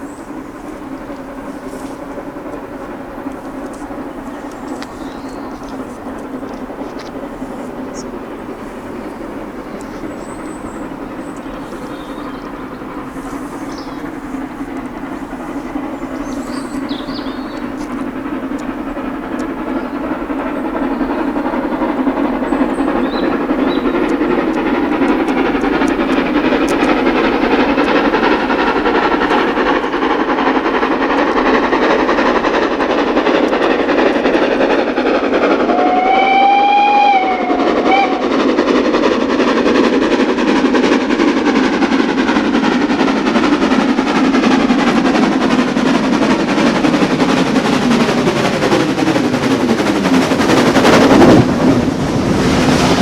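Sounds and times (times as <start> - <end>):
steam train passing: 0.0 - 53.0
locomotive whistle: 7.4 - 38.9.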